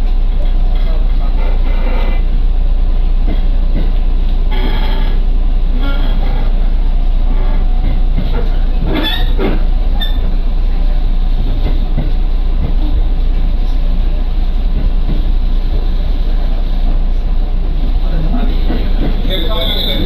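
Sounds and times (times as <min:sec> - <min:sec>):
train wheels rumbling on rail: 0:00.0 - 0:20.0
squeal and rattle: 0:08.4 - 0:10.4, 0:19.0 - 0:20.0.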